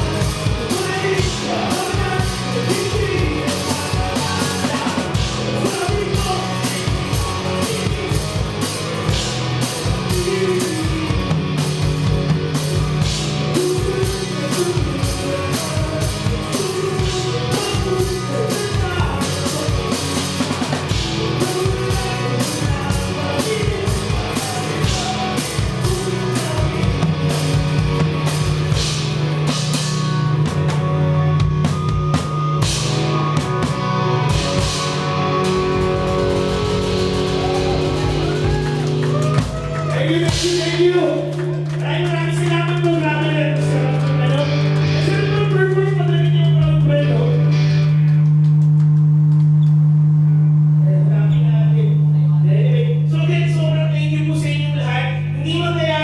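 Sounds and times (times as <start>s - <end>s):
person singing: 0.0s - 9.1s, 9.7s - 11.8s, 13.5s - 27.1s
drum kit beat: 0.0s - 49.4s
rock band playing: 0.0s - 49.4s.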